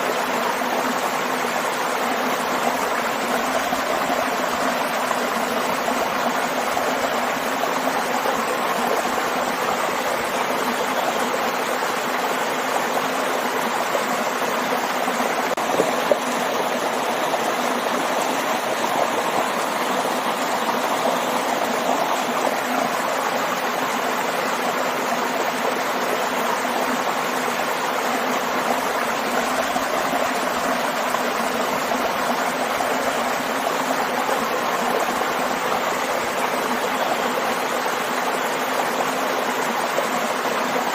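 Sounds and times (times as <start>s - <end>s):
water running and splashing: 1.7s - 23.8s.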